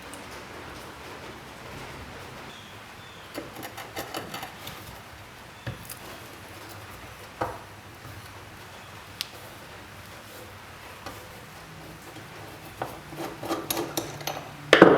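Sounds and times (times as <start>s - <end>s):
hard parts knocking on work surface: 3.3s - 5.0s, 12.1s - 14.9s
light clicks and taps: 9.1s - 14.6s.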